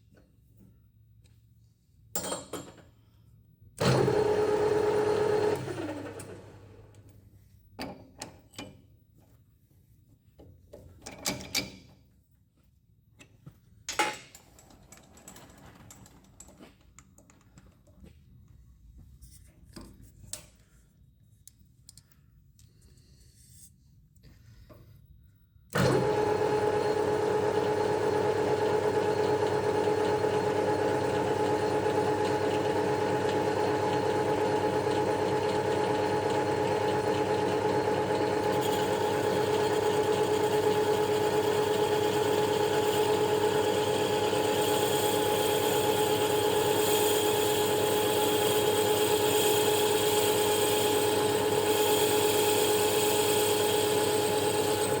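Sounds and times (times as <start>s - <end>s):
machine tool motor humming: 25.8s - 55.0s.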